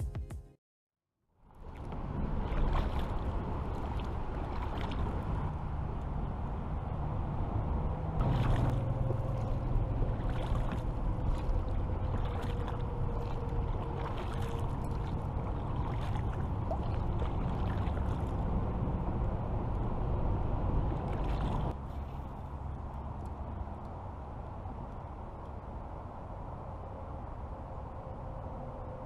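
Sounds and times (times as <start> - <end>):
low rumble: 1.4 - 29.0
paddle splashing water: 1.6 - 5.8, 8.2 - 18.6, 20.6 - 22.8.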